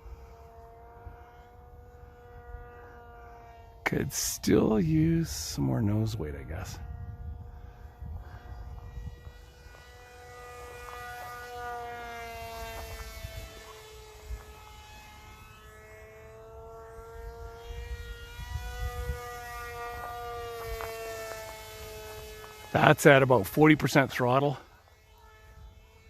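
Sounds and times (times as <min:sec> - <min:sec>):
electric model plane motor whine: 0:00.0 - 0:26.0
wind gusts on microphone: 0:04.0 - 0:11.5, 0:17.0 - 0:21.0.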